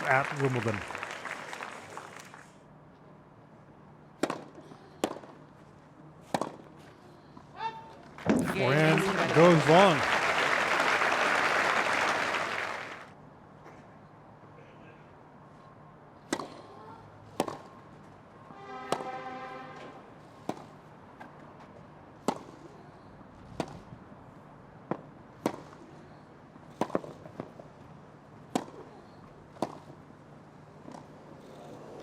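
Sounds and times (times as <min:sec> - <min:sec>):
racket striking tennis ball: 0:04.2 - 0:05.3, 0:06.2 - 0:06.6, 0:17.3 - 0:17.7, 0:18.8 - 0:20.8, 0:22.2 - 0:22.6.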